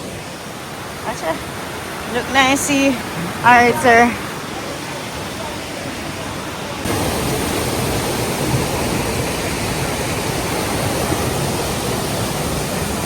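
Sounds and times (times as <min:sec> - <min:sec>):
waterfall and river rushing: 0:00.0 - 0:13.0.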